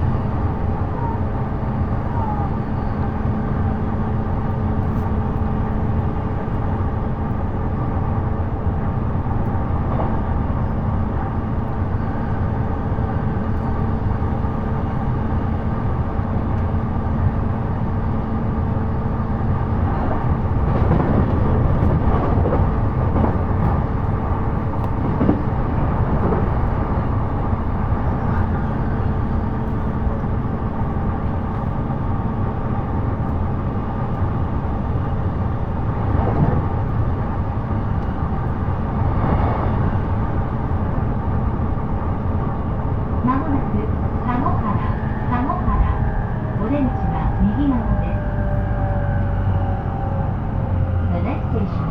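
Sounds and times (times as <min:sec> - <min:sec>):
train wheels rumbling on rails: 0:00.0 - 0:51.9
low motor hum: 0:43.2 - 0:51.9.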